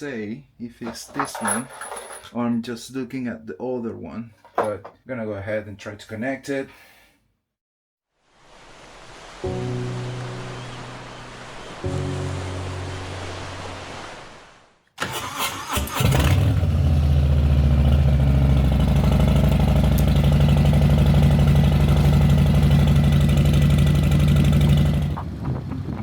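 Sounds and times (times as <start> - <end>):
engine cranking and starting: 15.0 - 25.9
engine idling: 15.1 - 26.0.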